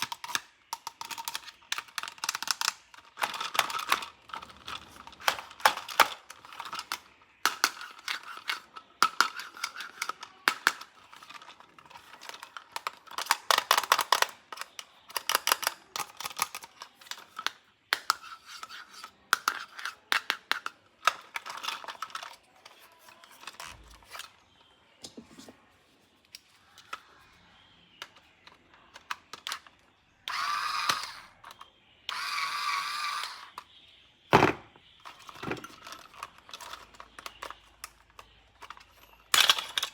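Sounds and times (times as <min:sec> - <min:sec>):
plastic toy parts rattling: 0:00.0 - 0:24.6, 0:26.3 - 0:27.4, 0:28.0 - 0:39.9
electronic toy sound effects: 0:30.3 - 0:37.8.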